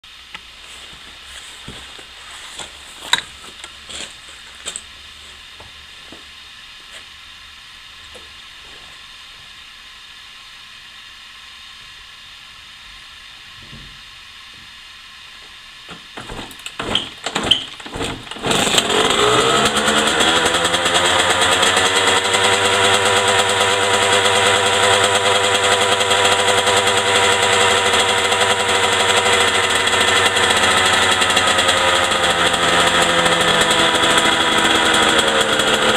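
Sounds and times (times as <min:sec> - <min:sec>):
two-stroke engine idling: 0:16.2 - 0:35.9.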